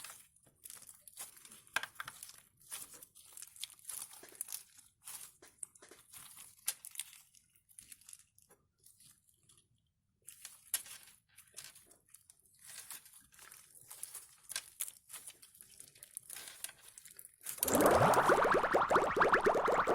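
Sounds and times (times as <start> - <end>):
slime squeezed by hand: 17.6 - 19.9.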